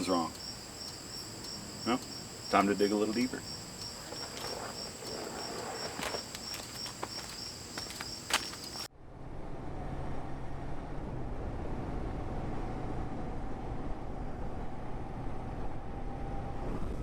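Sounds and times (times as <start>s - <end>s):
crickets chirping: 0.0s - 8.9s.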